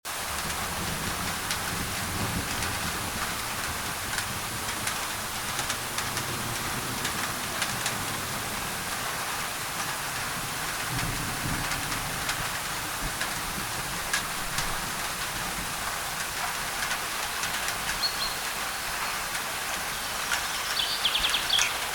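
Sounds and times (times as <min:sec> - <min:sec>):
rain on a tin roof: 0:00.0 - 0:21.9
thunder rumbling: 0:00.2 - 0:16.4.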